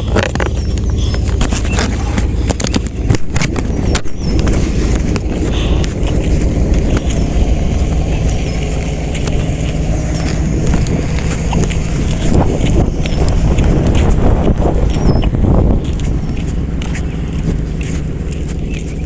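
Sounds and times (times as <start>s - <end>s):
bicycle clicks and rattles: 0.0s - 19.0s
bicycle tyres rolling on road: 0.0s - 19.0s
wind buffeting microphone: 0.0s - 19.0s.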